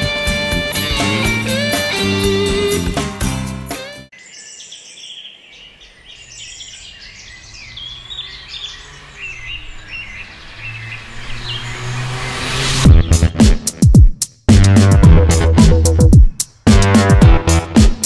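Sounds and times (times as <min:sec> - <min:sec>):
guitar music: 0:00.0 - 0:04.1
small birds chirping: 0:04.1 - 0:13.3.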